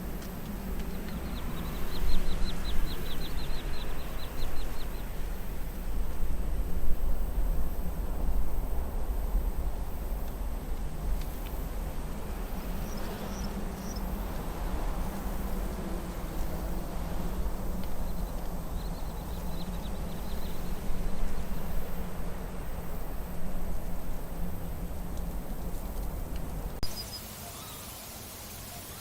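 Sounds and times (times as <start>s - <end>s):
faint bird chirps: 26.8s - 29.0s.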